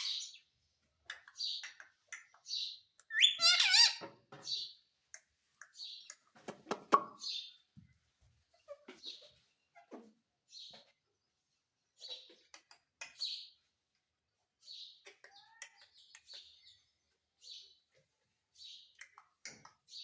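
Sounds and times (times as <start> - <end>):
parrot chirping: 2.6 - 4.0.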